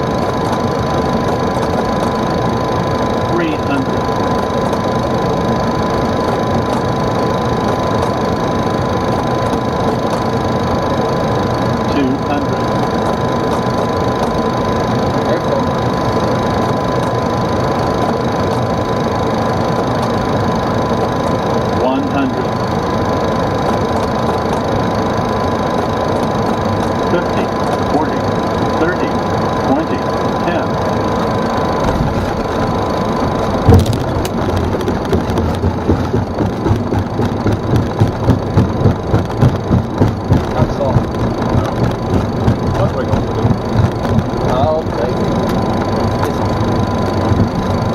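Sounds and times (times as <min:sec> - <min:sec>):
aircraft cabin engine and airflow rush: 0:00.0 - 0:47.9
wheels rumbling on runway: 0:00.0 - 0:47.9
landing gear thump: 0:33.6 - 0:42.9.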